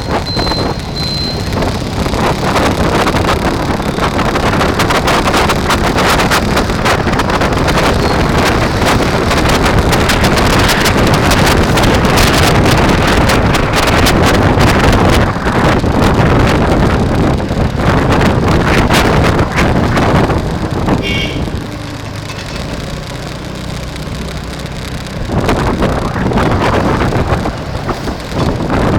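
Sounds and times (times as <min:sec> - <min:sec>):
wind buffeting microphone: 0:00.0 - 0:28.9
high beep: 0:00.2 - 0:01.5.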